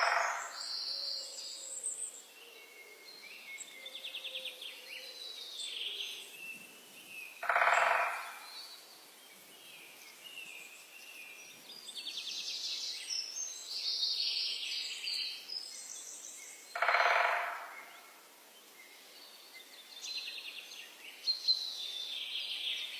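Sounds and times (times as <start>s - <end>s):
louder lower bird calls: 7.4s - 8.6s, 16.7s - 18.1s.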